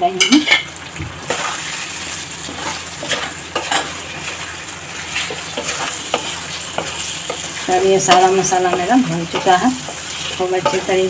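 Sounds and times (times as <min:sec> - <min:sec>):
meat sizzling in a pot: 0:00.0 - 0:11.0
spatula scraping a metal pot: 0:02.4 - 0:04.4, 0:05.1 - 0:11.0.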